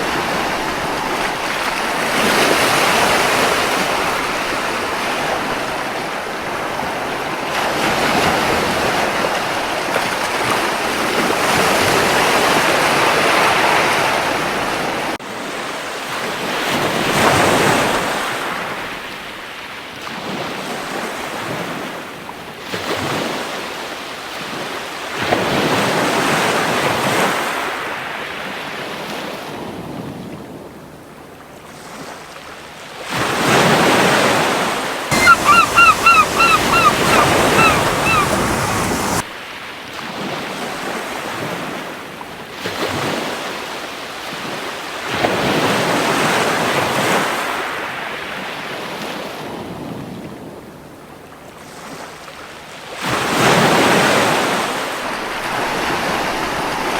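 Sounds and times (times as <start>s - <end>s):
ocean waves breaking on beach: 0.0s - 15.2s, 35.1s - 39.2s, 52.9s - 56.9s.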